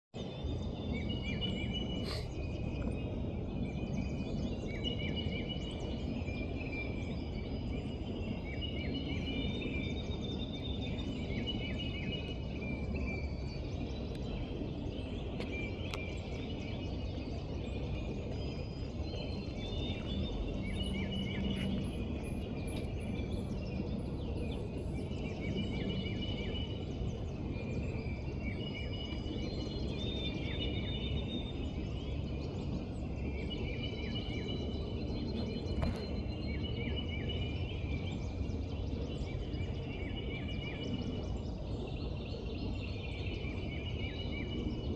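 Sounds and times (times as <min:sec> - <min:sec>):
low background rumble: 0:00.3 - 0:44.9
birds chirping and singing: 0:08.6 - 0:41.3.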